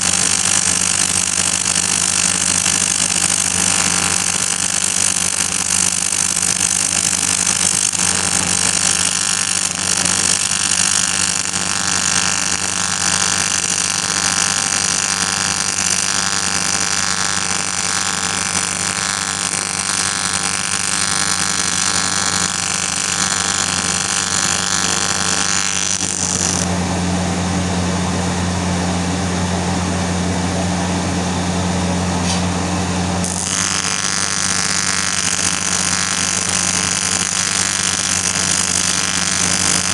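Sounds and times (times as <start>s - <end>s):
arc welding hissing crackle: 0.0s - 26.7s, 33.2s - 39.9s
deep mains hum: 17.8s - 39.9s.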